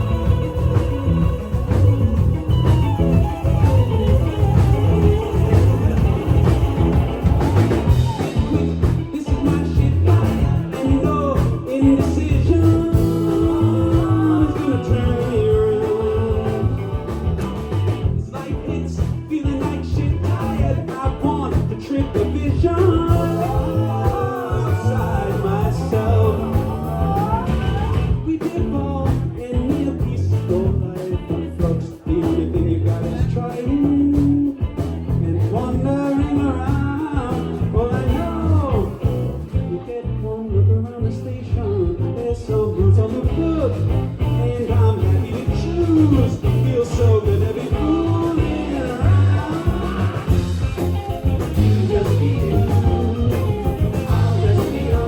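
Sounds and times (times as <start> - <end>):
bass: 0.0 - 55.0
drums: 0.0 - 55.0
electric guitar: 0.0 - 55.0
person singing: 0.0 - 55.0.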